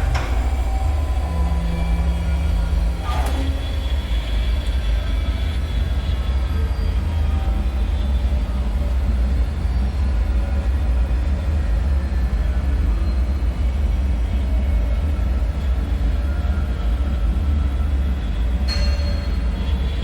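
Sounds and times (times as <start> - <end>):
deep rumbling drone: 0.0 - 6.4.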